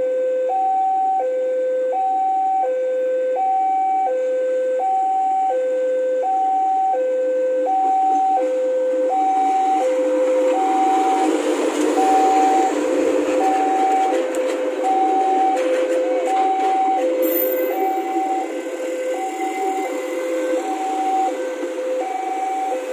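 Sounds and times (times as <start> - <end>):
train rumbling past on rails: 7.8 - 22.9
level crossing alarm two-tone: 12.0 - 12.8, 13.4 - 14.2, 14.8 - 19.8, 22.0 - 22.9.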